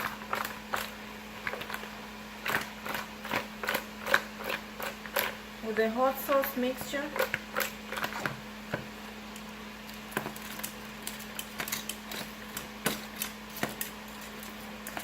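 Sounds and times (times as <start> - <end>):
utensil clicking in a bowl: 9.3 - 15.0.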